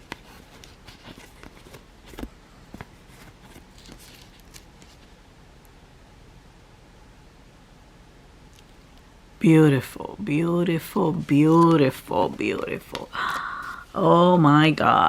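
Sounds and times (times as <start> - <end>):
soft rustles: 0.0 - 5.2.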